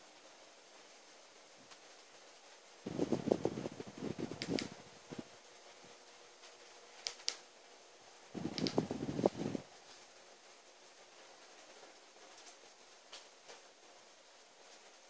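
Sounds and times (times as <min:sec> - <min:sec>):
wood fire crackling and popping: 0:02.9 - 0:05.3, 0:08.4 - 0:09.6.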